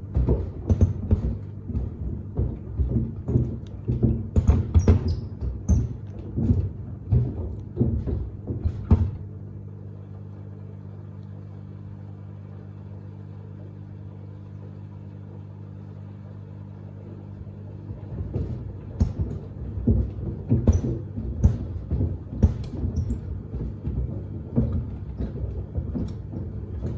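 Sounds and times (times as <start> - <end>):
sneakers thudding in drum: 0.0 - 9.4, 17.4 - 26.9
washing machine humming: 0.0 - 26.9.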